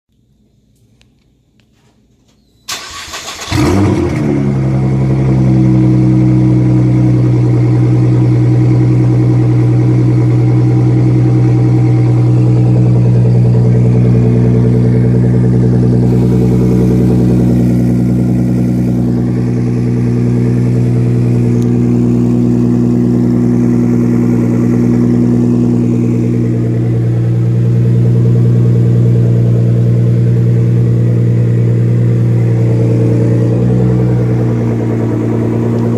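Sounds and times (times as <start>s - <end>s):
car engine starting and idling: 0.6s - 35.9s.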